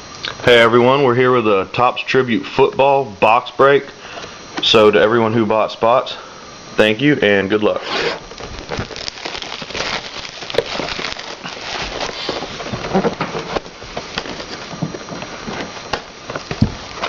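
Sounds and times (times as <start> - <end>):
plastic wrap crackling: 8.2 - 17.0.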